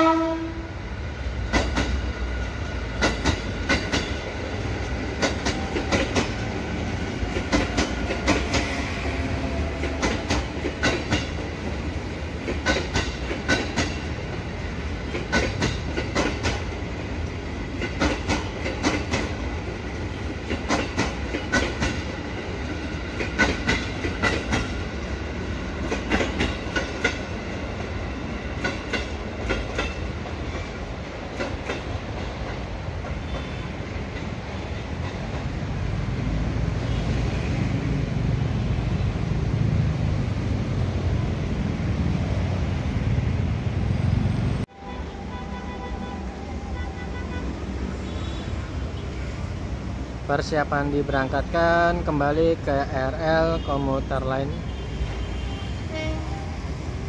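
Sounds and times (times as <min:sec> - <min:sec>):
train rumble: 0:00.0 - 0:57.0
train wheels clattering over rails: 0:01.4 - 0:37.8.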